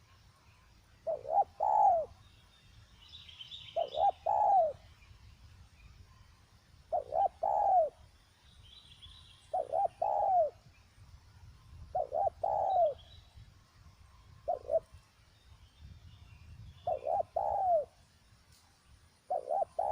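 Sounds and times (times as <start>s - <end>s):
small birds chirping: 0.0s - 19.9s
dove cooing: 1.0s - 2.2s, 3.8s - 4.8s, 6.9s - 8.0s, 9.5s - 10.6s, 11.9s - 13.1s, 14.5s - 14.9s, 16.8s - 17.9s, 19.3s - 19.9s.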